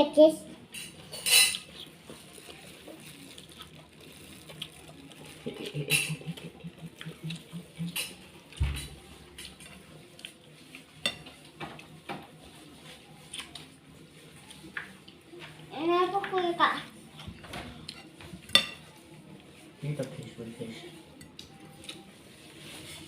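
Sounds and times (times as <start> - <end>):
cutlery clinking against a bowl: 0.7 - 1.8, 5.7 - 6.5, 7.3 - 12.3, 17.8 - 19.0.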